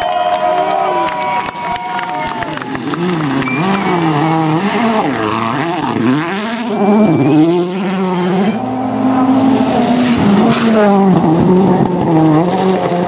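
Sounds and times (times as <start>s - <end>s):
rally car engine revving hard: 2.2s - 13.0s.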